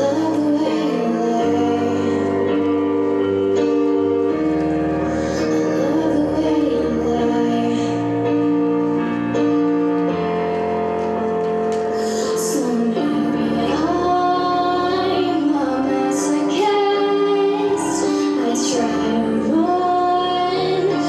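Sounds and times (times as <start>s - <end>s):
instrumental accompaniment: 0.0s - 21.0s
woman singing long notes: 5.4s - 8.2s, 12.3s - 21.0s.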